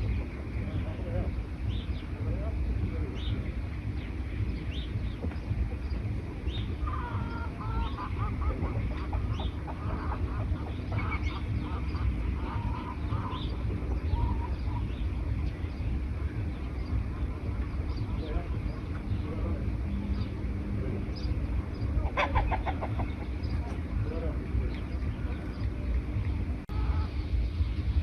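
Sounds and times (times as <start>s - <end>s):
birds chirping: 0.0s - 28.0s
low rumble: 0.0s - 28.0s
harsh quacking bird calls: 6.8s - 15.1s, 21.9s - 23.7s, 26.7s - 27.2s.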